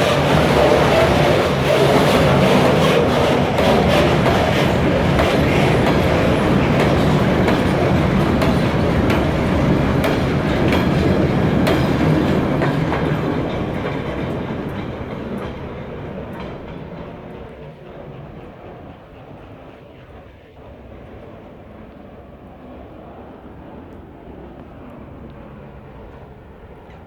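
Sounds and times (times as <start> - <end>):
train wheels clicking over rail joints: 0.0 - 20.8.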